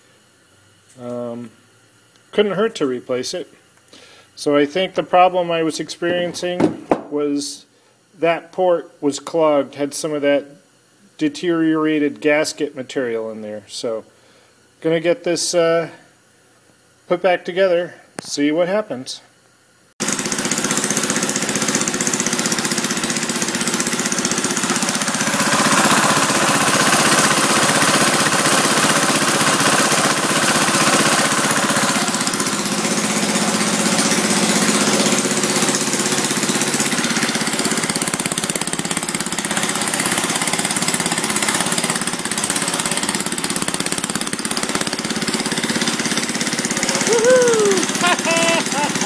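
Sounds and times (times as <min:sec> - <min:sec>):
small gasoline engine running: 0:20.0 - 0:49.0.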